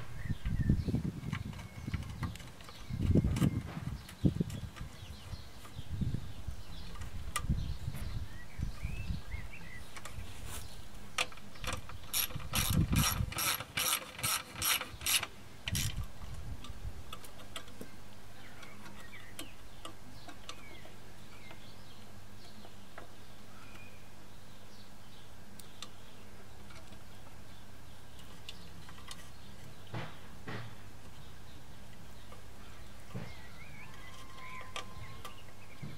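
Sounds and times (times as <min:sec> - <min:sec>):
ratchet clicks: 0:11.2 - 0:16.0
tool knocks and handling: 0:29.9 - 0:30.8.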